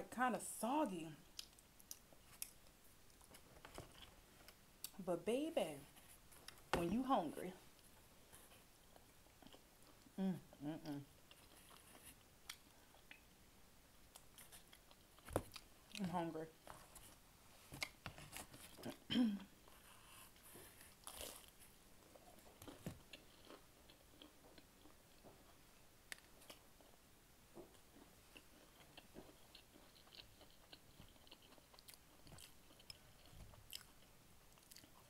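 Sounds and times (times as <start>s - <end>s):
chewing and biting food: 20.1s - 27.0s, 27.6s - 35.0s
small crunches: 20.6s - 25.3s.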